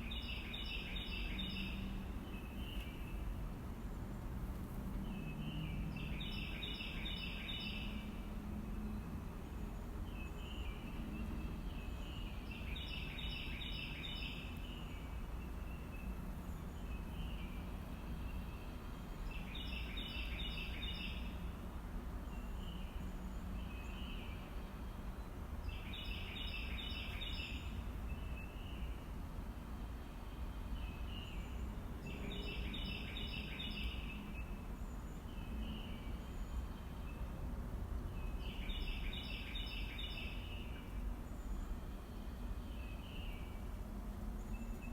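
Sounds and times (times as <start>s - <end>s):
songbird singing rapid phrase: 0.0s - 3.3s, 5.0s - 8.0s, 10.1s - 16.1s, 25.7s - 29.0s, 32.1s - 34.6s, 38.2s - 41.8s.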